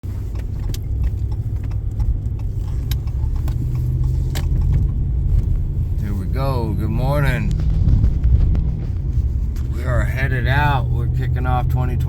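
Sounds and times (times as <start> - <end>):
vehicle rumbling on road: 0.0 - 12.0
light rattles and clicks: 0.1 - 6.2.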